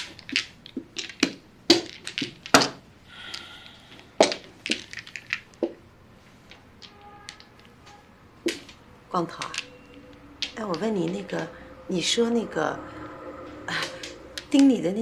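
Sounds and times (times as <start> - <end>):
mahjong tiles clacking on table: 0.0 - 5.8, 6.4 - 7.8, 8.4 - 11.6, 13.7 - 15.0.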